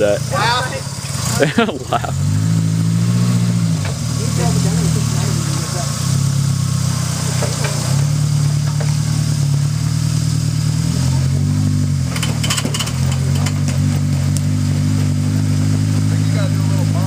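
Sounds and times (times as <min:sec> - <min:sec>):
engine running at low revs: 0:00.0 - 0:17.0
sharp clicks and knocks: 0:12.1 - 0:14.5.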